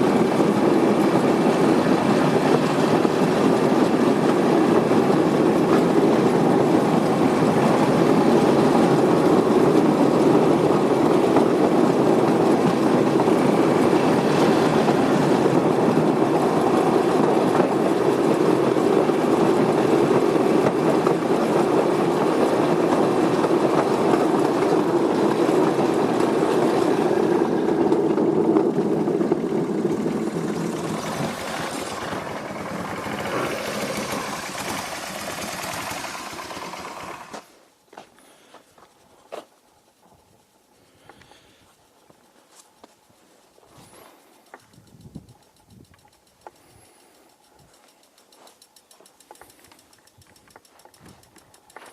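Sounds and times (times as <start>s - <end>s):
vehicle rumbling on rough road: 0.0s - 38.0s.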